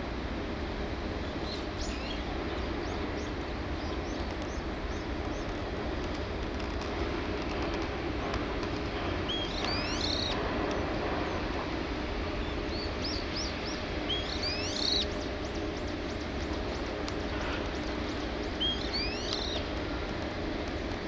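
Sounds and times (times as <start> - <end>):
low background hum: 0.0 - 21.0
bird whistling call: 9.3 - 10.4, 12.7 - 15.1, 18.6 - 19.6.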